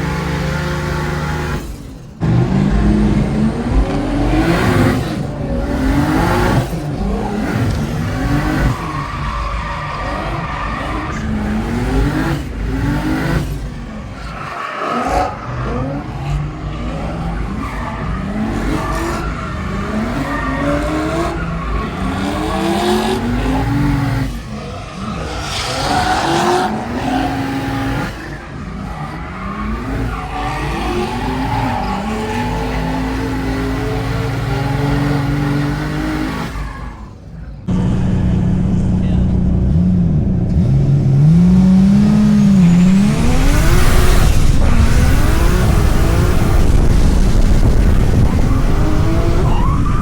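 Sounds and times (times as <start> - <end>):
engine revving: 0.0 - 36.6, 37.6 - 50.0
tyre squeal: 47.8 - 50.0.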